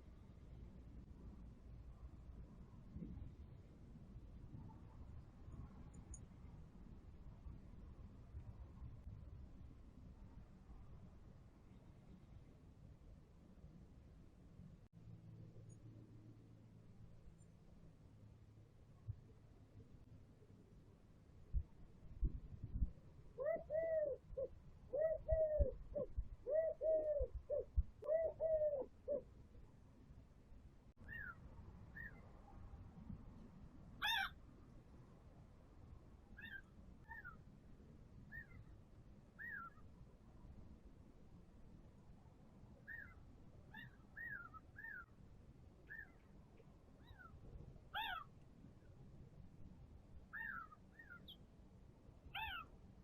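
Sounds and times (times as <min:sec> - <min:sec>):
dove cooing: 0:23.4 - 0:29.2
bird calling: 0:48.0 - 0:48.3, 0:50.4 - 0:51.4, 0:52.3 - 0:52.7.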